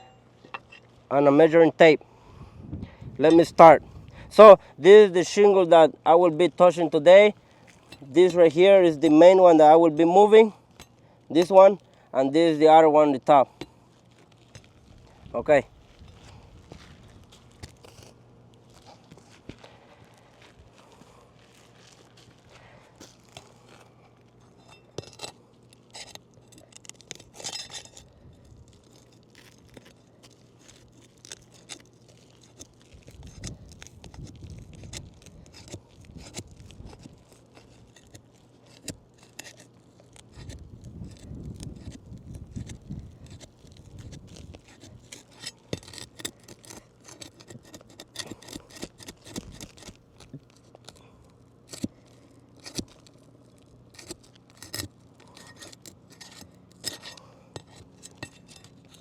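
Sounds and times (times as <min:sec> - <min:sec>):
pry bar scraping shingles: 0:20.8 - 0:59.0.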